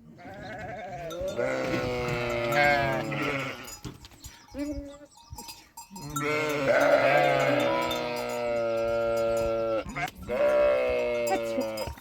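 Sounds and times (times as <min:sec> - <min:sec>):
sheep bleating: 0:00.2 - 0:03.8, 0:06.1 - 0:12.0.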